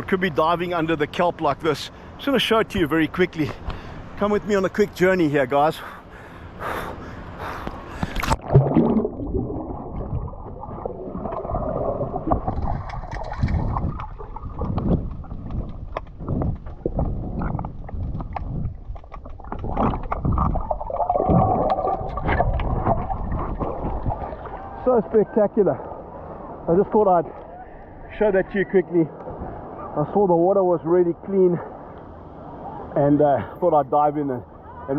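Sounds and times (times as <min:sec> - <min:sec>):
underwater water rushing: 0:07.8 - 0:25.0
bubbles gurgling: 0:08.0 - 0:24.8.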